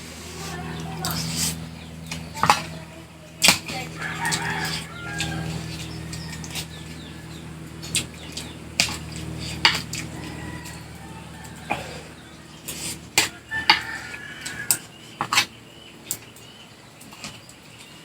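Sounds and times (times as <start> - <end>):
low steady hum: 0.0 - 18.0
eating smacks and clicks: 3.4 - 15.5.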